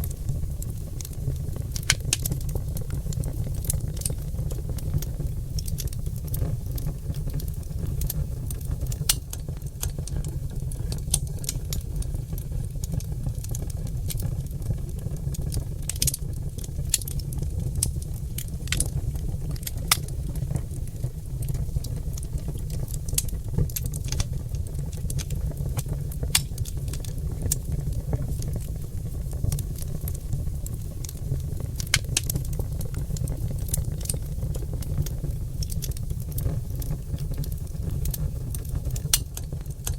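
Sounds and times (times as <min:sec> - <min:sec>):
log fire crackling: 0:00.0 - 0:39.9
sharp pops of fire: 0:00.1 - 0:10.2, 0:21.4 - 0:39.9.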